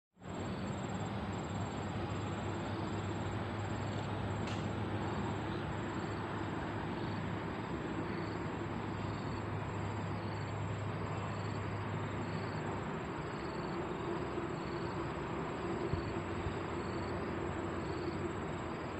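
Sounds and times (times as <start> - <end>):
insects chirping: 0.2 - 18.9
steady low hum: 0.2 - 18.9
faint click: 4.4 - 4.8.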